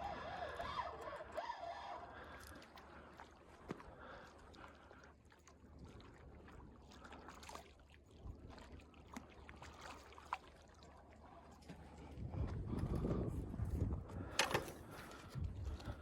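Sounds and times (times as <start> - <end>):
low wind-like rumble: 12.0 - 16.0.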